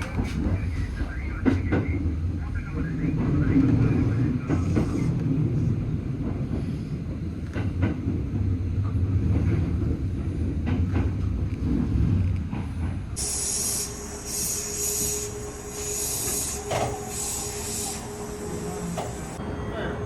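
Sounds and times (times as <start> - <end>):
train rumbling on rails: 0.0 - 20.0
high hiss: 13.2 - 19.4.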